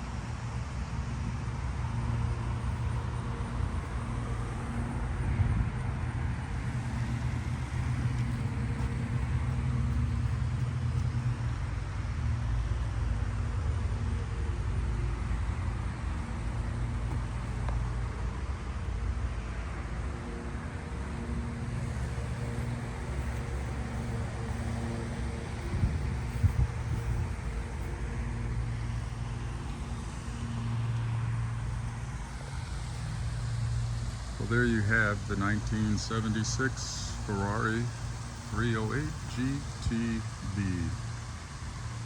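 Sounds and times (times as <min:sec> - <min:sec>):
car engine running: 0:02.3 - 0:12.6, 0:20.3 - 0:42.0.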